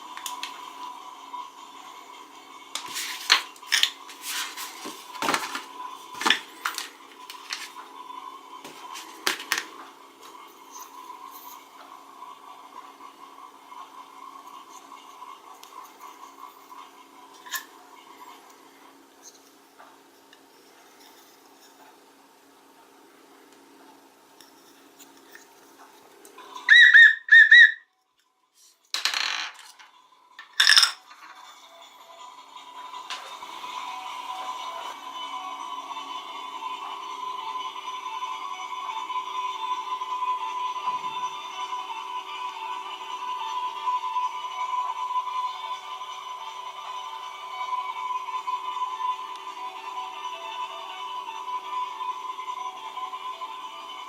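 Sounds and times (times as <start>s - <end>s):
warbling whistle: 26.6s - 27.9s.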